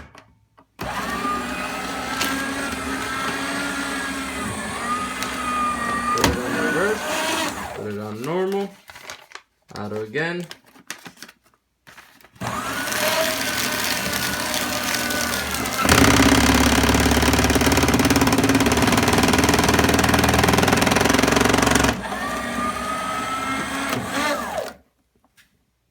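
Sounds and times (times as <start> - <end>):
paper shredder running: 0.8 - 8.0, 12.4 - 24.8.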